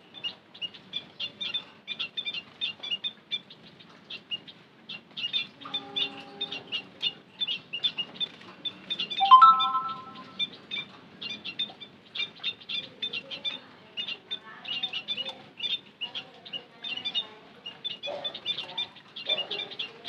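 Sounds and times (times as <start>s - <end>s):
birds chirping rapidly: 0.0s - 20.0s
held tone with several pitches: 9.2s - 10.3s
low held tone: 9.2s - 10.4s.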